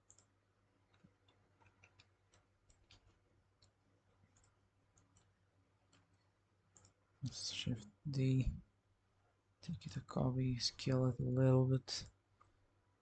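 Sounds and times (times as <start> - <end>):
computer mouse clicks: 0.0 - 7.0
low steady hum: 0.0 - 13.0.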